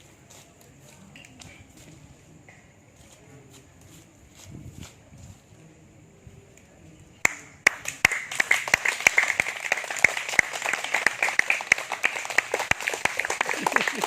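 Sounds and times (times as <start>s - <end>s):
audience applauding: 7.7s - 14.0s.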